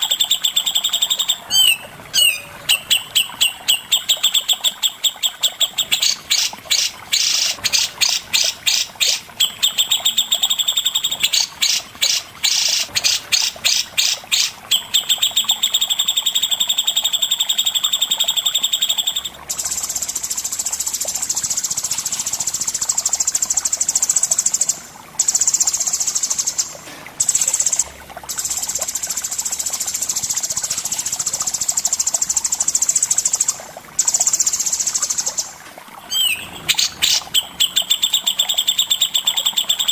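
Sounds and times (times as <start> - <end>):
songbird singing: 0.0 - 20.4, 34.1 - 39.9.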